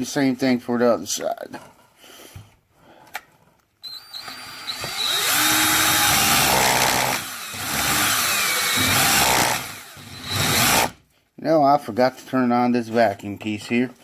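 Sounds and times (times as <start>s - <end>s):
power drill whining: 3.8s - 11.0s.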